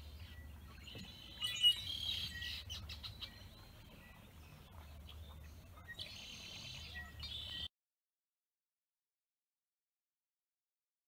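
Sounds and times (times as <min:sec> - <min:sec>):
small birds chirping: 0:00.0 - 0:07.7.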